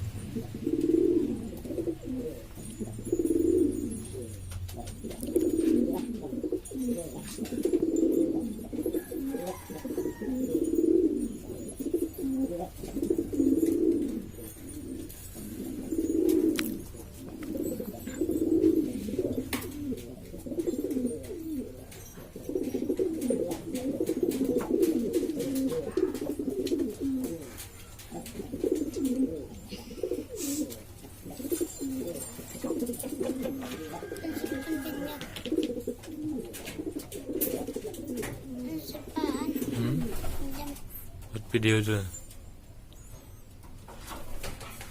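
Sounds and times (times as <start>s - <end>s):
pigeons cooing: 0.0s - 44.9s.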